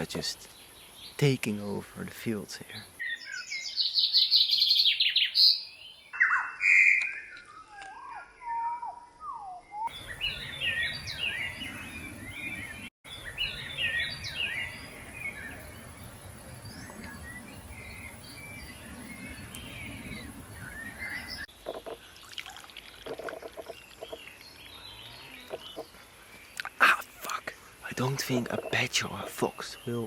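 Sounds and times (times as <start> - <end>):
small birds chirping: 0.0 - 30.0
wind on microphone: 15.6 - 21.4.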